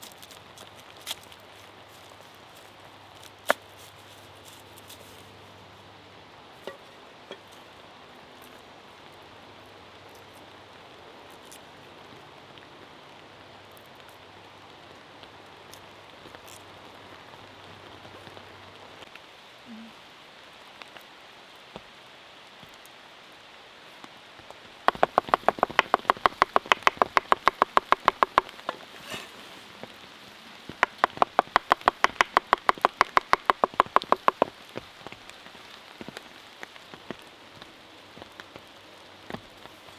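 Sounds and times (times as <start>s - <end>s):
rain patter: 0.0s - 39.9s
rapid knife chopping: 24.9s - 28.8s, 30.8s - 34.5s.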